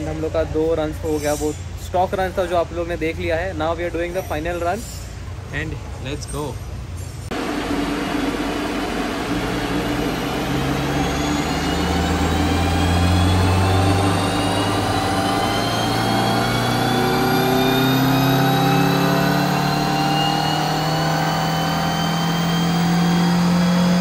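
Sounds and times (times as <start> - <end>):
car engine revving on dynamometer: 7.3 - 24.0.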